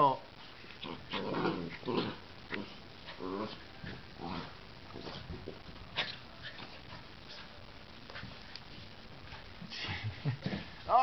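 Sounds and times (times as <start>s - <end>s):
dogs growling and huffing: 0.0s - 7.6s.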